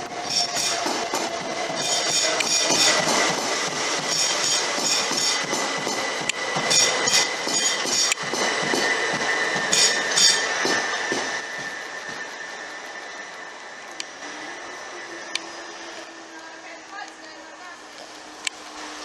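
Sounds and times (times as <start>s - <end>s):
train wheels on rails: 0.0s - 19.0s
steady high tone: 4.0s - 19.0s.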